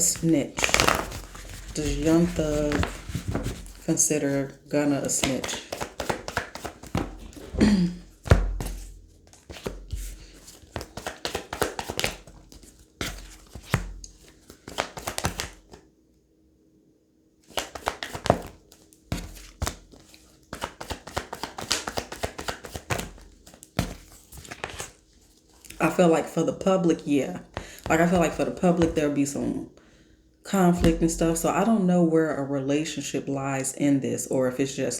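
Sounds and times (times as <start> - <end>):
cards being shuffled: 0.0 - 15.8, 17.5 - 25.9, 27.4 - 29.1.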